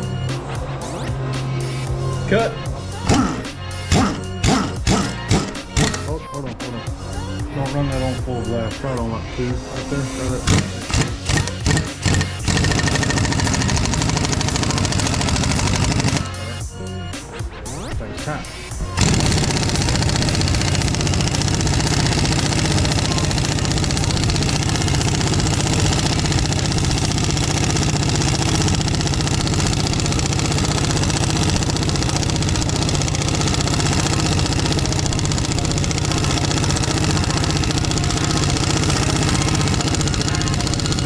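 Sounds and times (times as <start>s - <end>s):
impact wrench hammering: 3.0s - 6.2s, 10.4s - 16.4s, 18.8s - 41.0s.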